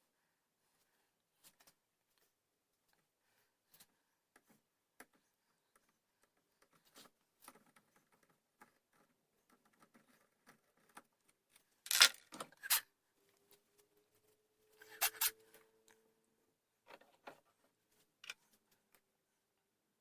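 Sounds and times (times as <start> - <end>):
metal lock parts clicking: 11.9 - 12.8.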